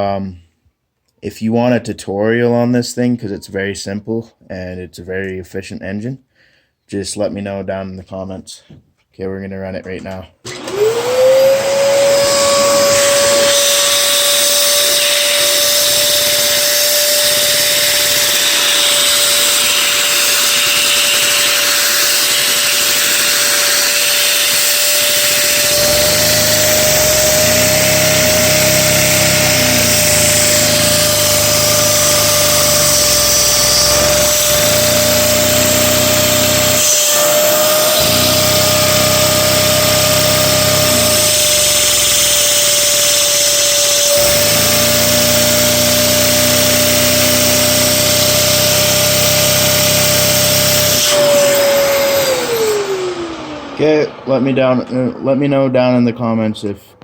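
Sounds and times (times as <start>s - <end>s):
small engine whirring with whine: 10.5s - 56.4s
low hum: 51.1s - 57.0s.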